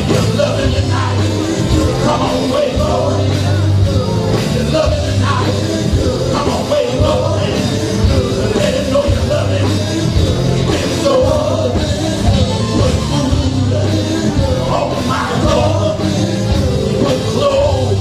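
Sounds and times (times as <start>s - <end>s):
gospel band music: 0.0s - 18.0s
voices singing: 0.0s - 18.0s.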